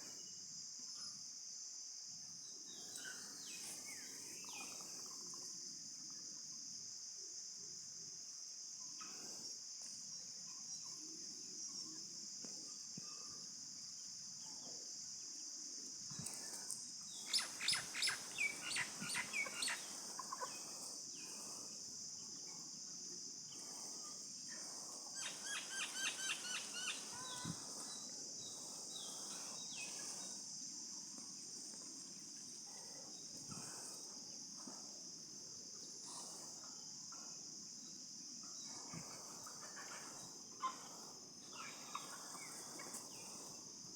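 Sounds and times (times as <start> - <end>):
high-pitched insect drone: 16.1 - 31.9
bird chirping: 17.1 - 21.7, 24.6 - 30.4.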